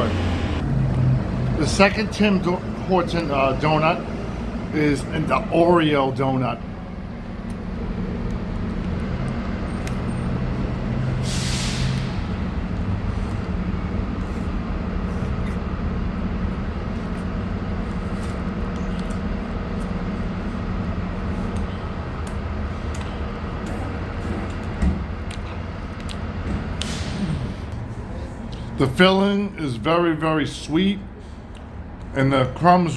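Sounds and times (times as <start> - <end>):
engine idling hum: 0.0 - 32.9
burst of hiss: 11.2 - 12.2.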